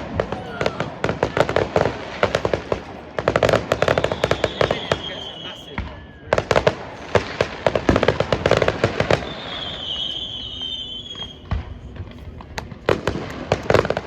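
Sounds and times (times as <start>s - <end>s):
fireworks bangs and crackles: 0.0s - 14.0s
firework whistle: 3.4s - 11.9s.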